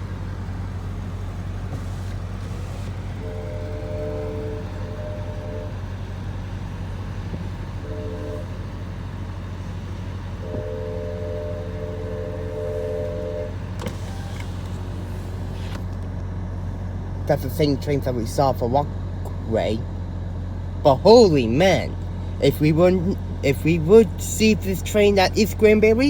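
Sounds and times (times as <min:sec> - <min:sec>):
low vehicle rumble: 0:00.0 - 0:26.0
faint train horn blasts: 0:03.0 - 0:14.3.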